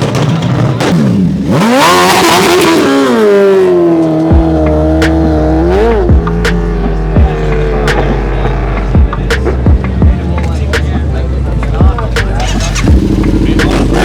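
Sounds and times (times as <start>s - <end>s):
vehicle engine revving: 0.0s - 14.0s
exhaust pops: 11.8s - 14.0s.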